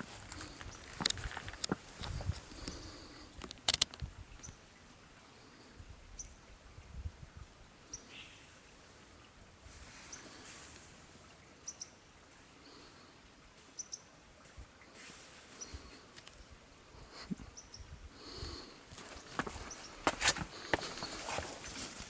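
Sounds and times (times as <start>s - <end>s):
light clicks and rustles: 0.0s - 4.6s
faint outdoor ambience: 0.0s - 22.0s
bird chirping: 11.6s - 12.0s.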